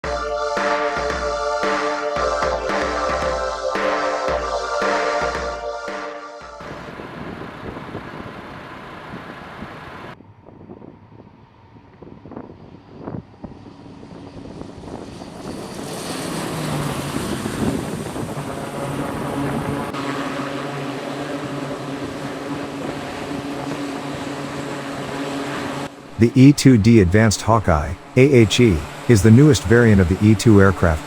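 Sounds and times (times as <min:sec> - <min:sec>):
turboprop engines droning: 0:16.4 - 0:31.0.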